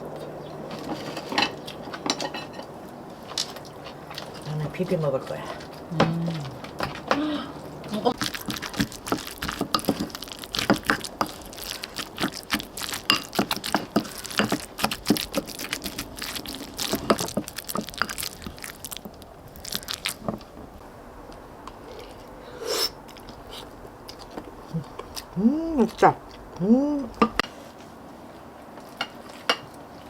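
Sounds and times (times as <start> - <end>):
crunchy chewing: 0.0 - 4.7, 5.5 - 30.0.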